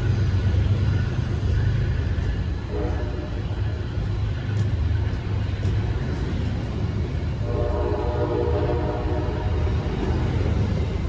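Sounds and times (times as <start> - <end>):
train rumbling past: 0.0 - 11.0
train horn: 2.6 - 3.6, 7.4 - 9.7.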